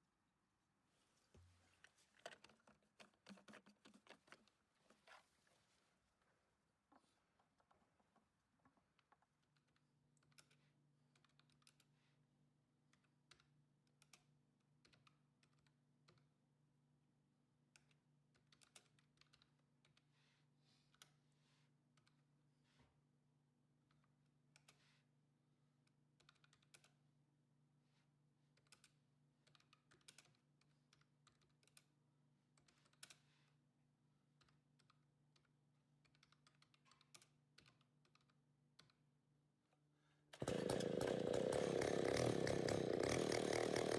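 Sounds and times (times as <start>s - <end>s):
faint irregular clicks: 7.4s - 12.0s, 25.8s - 27.1s, 28.5s - 33.6s, 34.2s - 39.8s.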